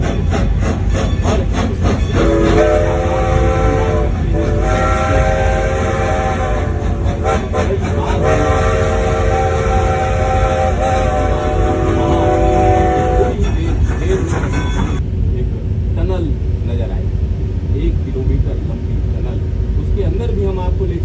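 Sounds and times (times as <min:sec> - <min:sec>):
wheels clicking on rails: 0:00.0 - 0:15.0
rumble of moving train: 0:00.0 - 0:21.0
train horn blasts: 0:01.8 - 0:15.0.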